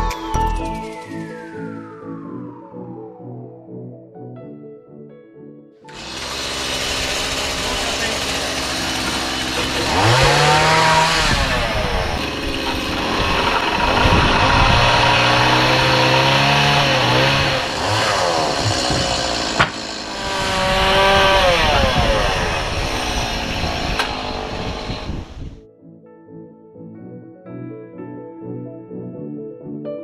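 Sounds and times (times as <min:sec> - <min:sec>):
power tool engine revving: 0:05.9 - 0:25.6.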